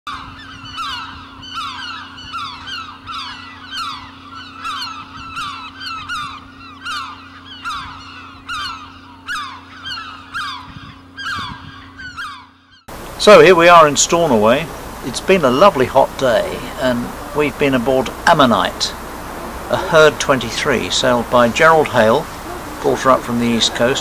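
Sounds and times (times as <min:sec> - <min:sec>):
steady low hum: 0:00.1 - 0:24.0.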